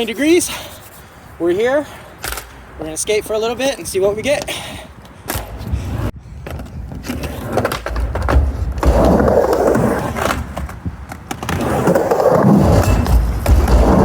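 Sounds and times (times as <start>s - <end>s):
skateboard wheels rumbling: 5.3s - 14.0s
skateboard clicks and knocks: 6.4s - 14.0s.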